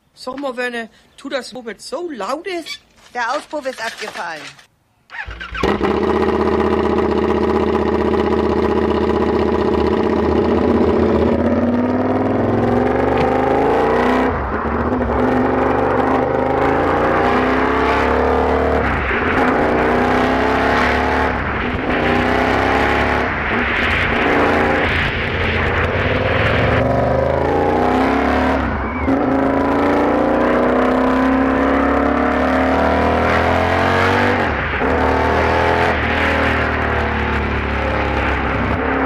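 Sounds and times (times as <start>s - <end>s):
motorcycle engine accelerating: 5.1s - 39.0s.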